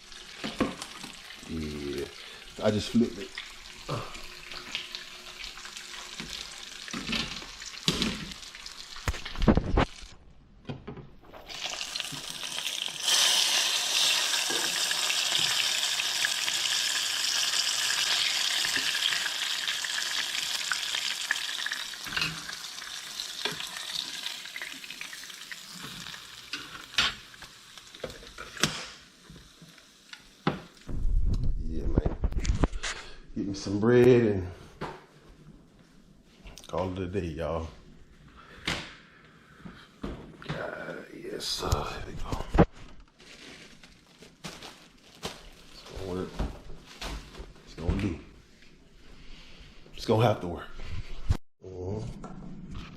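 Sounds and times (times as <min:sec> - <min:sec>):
fish sizzling in hot grease: 0:00.0 - 0:10.1, 0:11.4 - 0:30.8.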